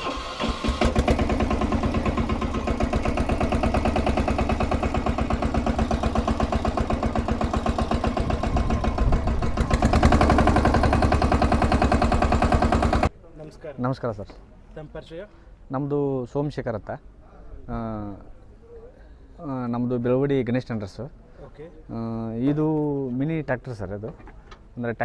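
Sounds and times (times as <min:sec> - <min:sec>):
diesel engine idling with knock: 0:00.5 - 0:13.1.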